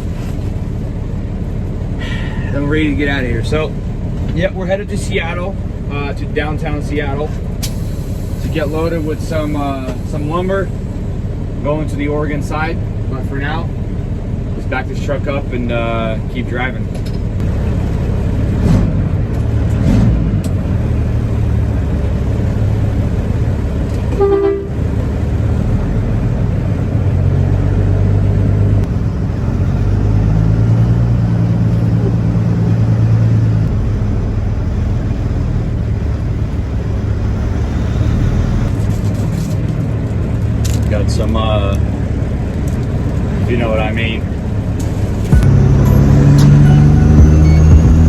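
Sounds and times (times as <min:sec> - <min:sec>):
truck engine driving off: 0:00.0 - 0:16.3, 0:16.9 - 0:48.0.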